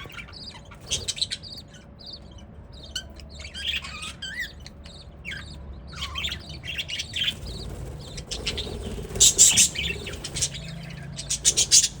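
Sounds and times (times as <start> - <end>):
budgerigars chirping: 0.0 - 12.0
wings flapping: 7.0 - 12.0.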